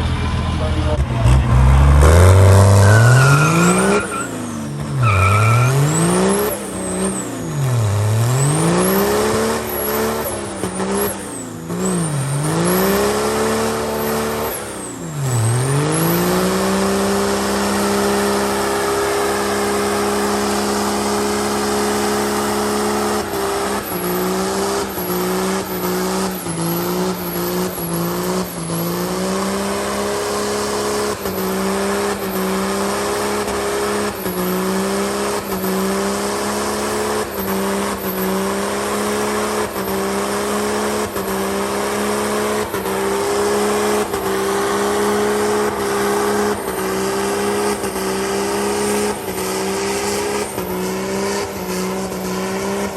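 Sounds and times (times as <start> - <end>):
truck engine revving high: 0.0 - 52.9
tyres squealing: 1.7 - 7.7.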